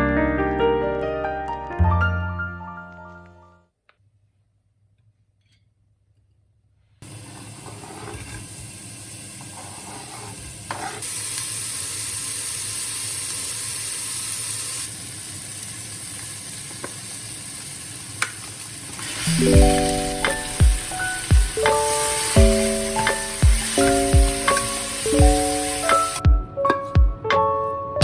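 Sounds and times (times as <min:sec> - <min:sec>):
food sizzling in a pan: 0:07.0 - 0:26.2.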